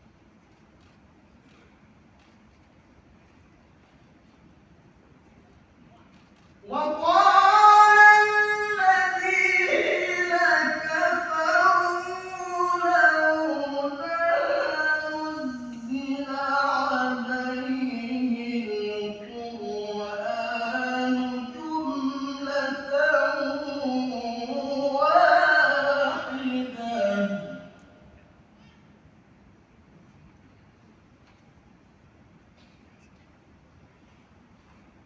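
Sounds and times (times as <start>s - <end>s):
man reciting melodic chant: 6.6s - 27.9s.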